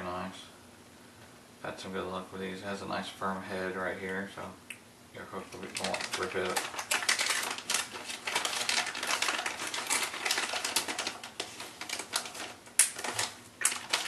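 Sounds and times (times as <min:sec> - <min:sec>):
plastic packaging crinkling: 0:05.3 - 0:14.0.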